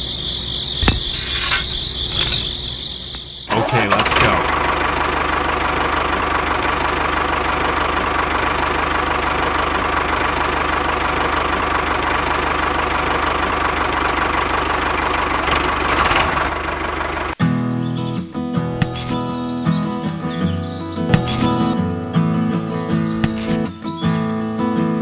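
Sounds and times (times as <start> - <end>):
small tractor engine running: 4.0 - 17.4.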